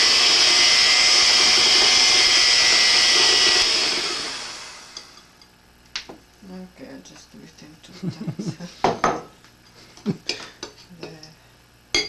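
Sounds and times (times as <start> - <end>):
electric mixer whirring: 0.0 - 5.4.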